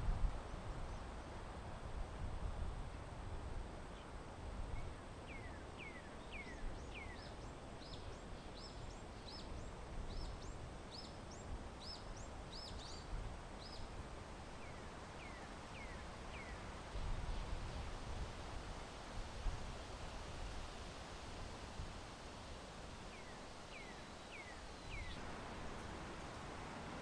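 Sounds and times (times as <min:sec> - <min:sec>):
songbird chirping: 0:23.1 - 0:27.0.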